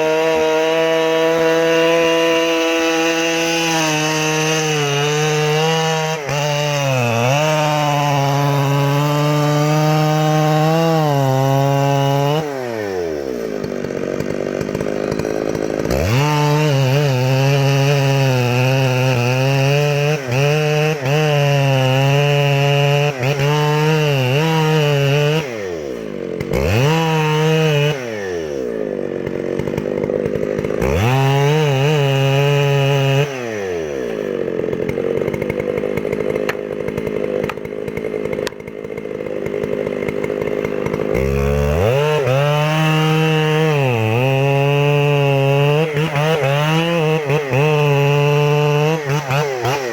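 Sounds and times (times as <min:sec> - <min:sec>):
chainsaw revving: 0:00.0 - 0:49.9.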